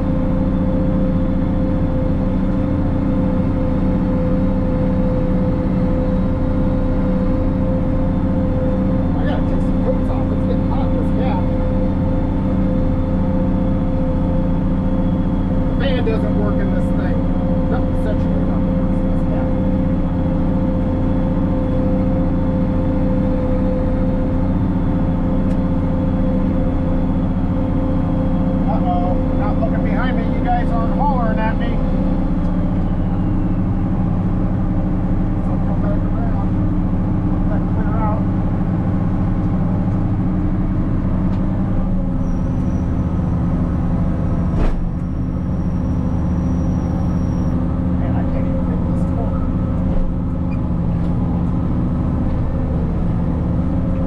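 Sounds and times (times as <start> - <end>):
steady whine: 0.0 - 54.0
tractor diesel engine under load: 0.0 - 54.0
sharp clunk: 44.5 - 45.1.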